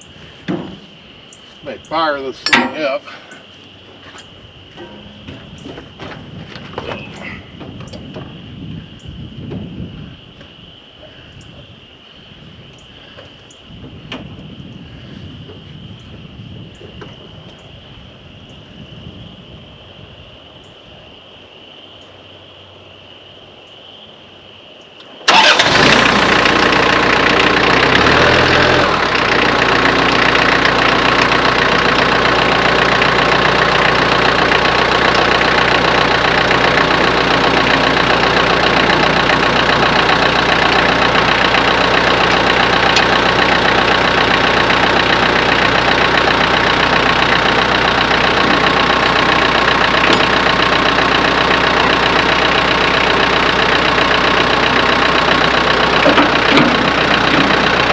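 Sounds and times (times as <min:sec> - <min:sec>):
tractor diesel engine starting and idling: 0:00.0 - 0:03.5, 0:04.7 - 0:08.9, 0:25.0 - 0:57.9.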